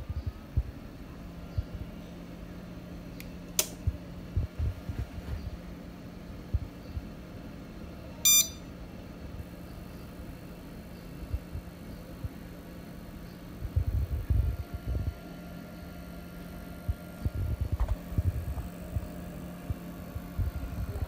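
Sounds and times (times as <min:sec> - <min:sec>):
steady low hum: 0:00.0 - 0:21.0
sharp click: 0:03.2 - 0:03.8
short electronic beep: 0:08.2 - 0:08.6.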